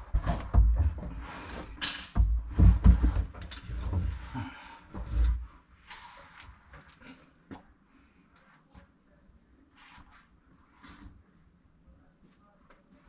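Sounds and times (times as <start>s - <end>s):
objects bumping and knocking: 0.0s - 5.5s.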